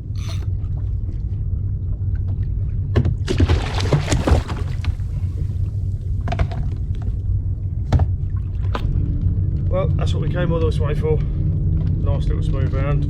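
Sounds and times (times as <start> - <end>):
steady low rumble: 0.0 - 13.0
water splashing: 3.3 - 7.2.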